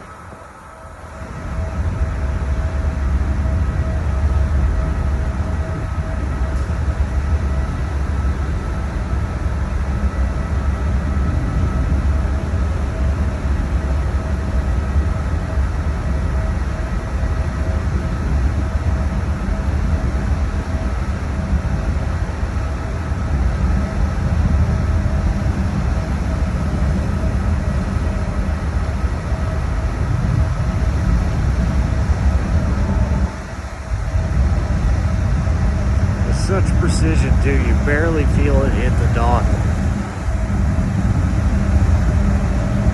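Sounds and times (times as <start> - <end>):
faint engine whine: 0.0 - 42.9
ferry engines rumbling: 0.0 - 42.9.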